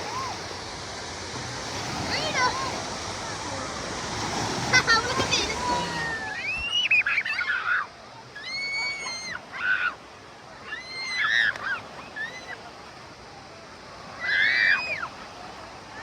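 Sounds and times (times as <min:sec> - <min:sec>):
faint wash of water: 0:00.0 - 0:16.0
children squealing: 0:04.8 - 0:10.0, 0:10.6 - 0:12.6, 0:14.2 - 0:15.2.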